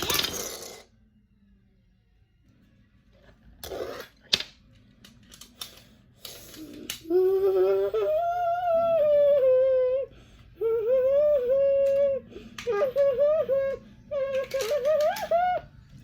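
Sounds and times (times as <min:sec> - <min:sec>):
child humming: 0:06.7 - 0:15.7.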